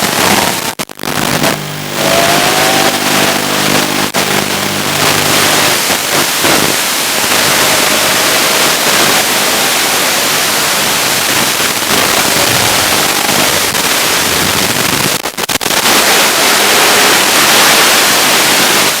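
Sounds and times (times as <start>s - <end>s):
static hiss: 0.0s - 19.0s
faint motor tone: 1.4s - 10.8s.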